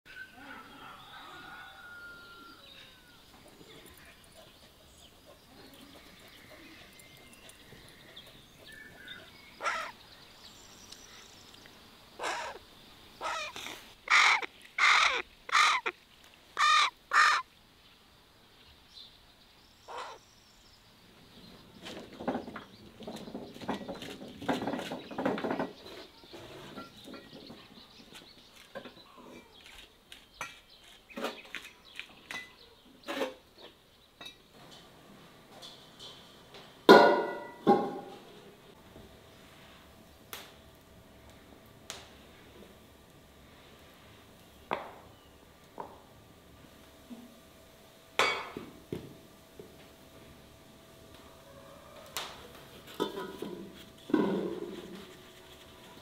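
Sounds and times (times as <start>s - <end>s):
faint bird calls: 5.5s - 10.0s, 12.2s - 16.0s, 16.6s - 17.5s, 19.8s - 20.2s
loud short bird calls: 9.6s - 10.0s, 12.2s - 12.6s, 13.2s - 16.0s, 16.6s - 17.5s, 19.9s - 20.2s.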